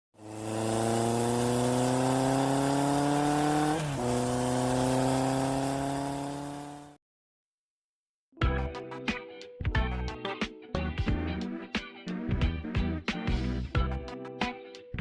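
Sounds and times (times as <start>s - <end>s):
vehicle engine accelerating: 0.2s - 7.0s.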